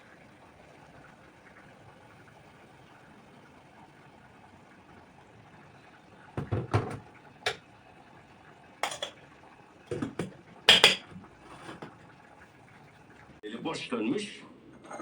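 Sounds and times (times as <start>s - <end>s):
kitchenware clinks and knocks: 8.8s - 9.2s, 9.9s - 12.0s.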